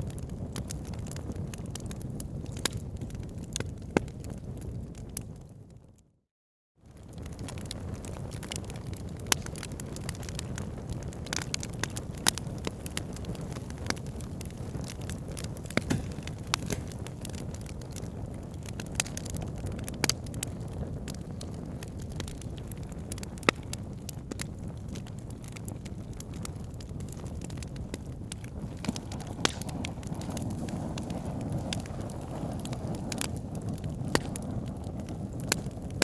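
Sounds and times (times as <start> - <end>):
wood fire crackling: 0.0 - 5.5, 6.9 - 36.0.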